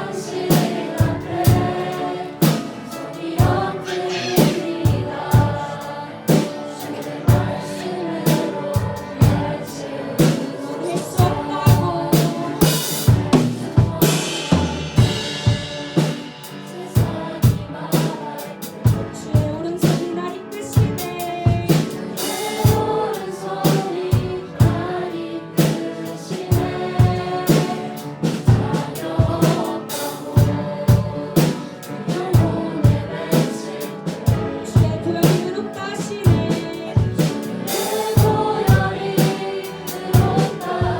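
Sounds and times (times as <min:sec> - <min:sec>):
drum kit beat: 0:00.0 - 0:40.9
piano: 0:00.0 - 0:40.9
worship band playing: 0:00.0 - 0:40.9
person singing: 0:03.4 - 0:06.4, 0:10.4 - 0:15.3.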